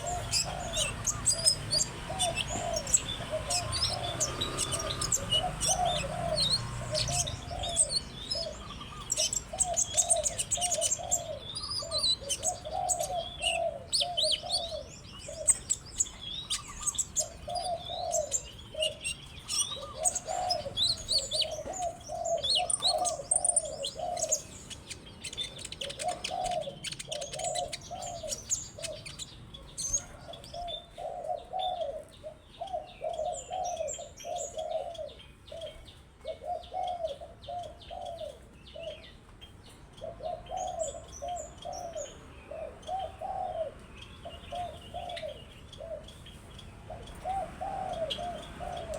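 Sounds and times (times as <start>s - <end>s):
bird twittering chirps: 0.0s - 48.9s
low cooing bird: 0.0s - 48.9s.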